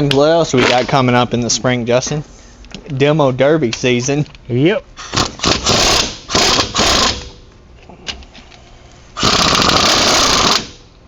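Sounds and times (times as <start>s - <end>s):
impact wrench hammering: 5.1s - 7.5s, 9.2s - 10.9s.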